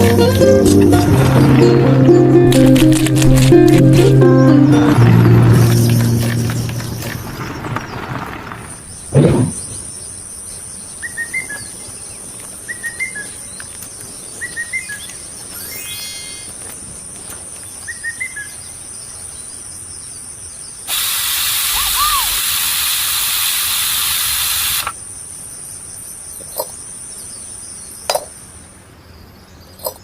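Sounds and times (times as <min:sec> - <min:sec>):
high-pitched whine: 0:20.9 - 0:25.0.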